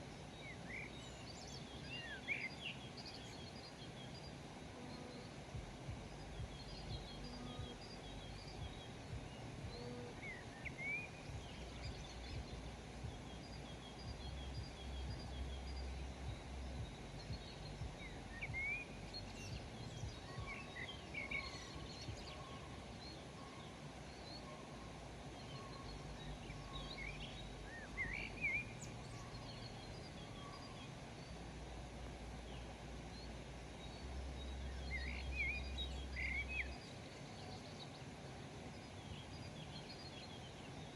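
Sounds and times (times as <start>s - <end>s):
low background rumble: 0.0s - 40.9s
wild birds chirping: 0.0s - 40.9s.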